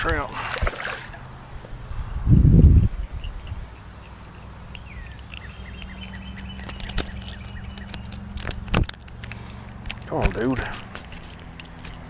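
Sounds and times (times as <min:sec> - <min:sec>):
small birds chirping: 0:02.8 - 0:11.8
sharp clicks and taps: 0:02.9 - 0:12.0.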